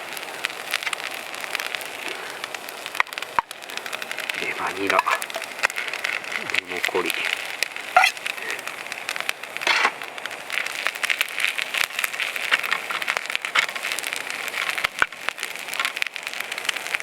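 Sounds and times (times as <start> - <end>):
stir-fry sizzling in a pan: 0.0 - 17.0.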